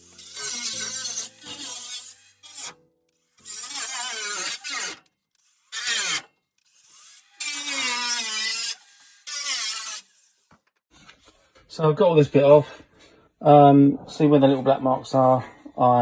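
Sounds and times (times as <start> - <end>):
hand tool scraping sheet metal: 0.0 - 11.6.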